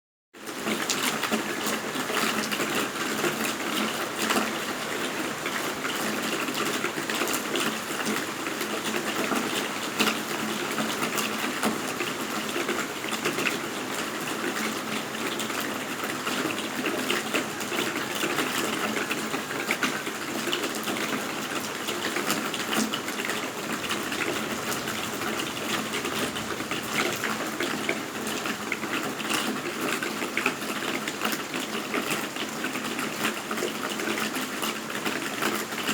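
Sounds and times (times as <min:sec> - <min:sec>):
steady rain falling: 0:00.4 - 0:35.9
raindrops ticking: 0:20.4 - 0:31.5.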